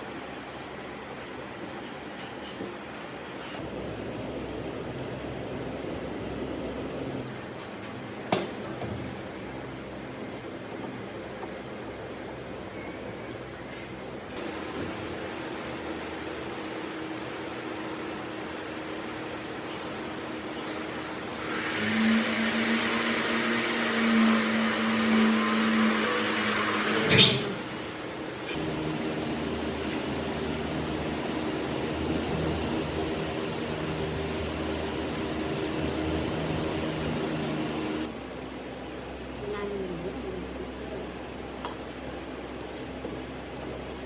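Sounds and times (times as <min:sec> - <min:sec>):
steady machine hum: 0:03.6 - 0:07.3, 0:13.9 - 0:44.0
electric power tool whining: 0:20.4 - 0:38.1.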